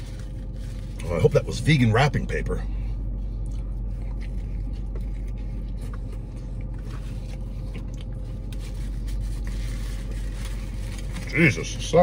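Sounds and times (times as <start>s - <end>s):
car cabin hum: 0.0s - 12.0s
chewing a burger: 2.9s - 11.9s.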